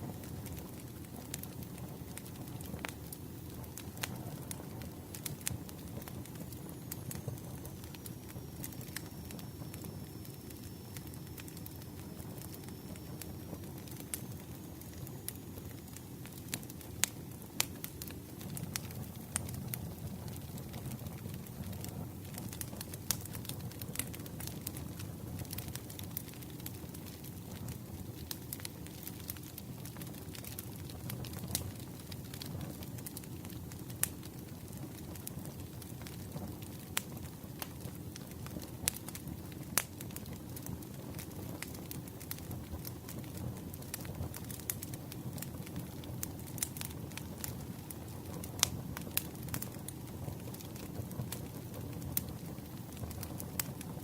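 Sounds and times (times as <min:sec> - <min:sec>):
campfire low rush: 0:00.0 - 0:54.0
wood crackling and popping: 0:00.0 - 0:54.0.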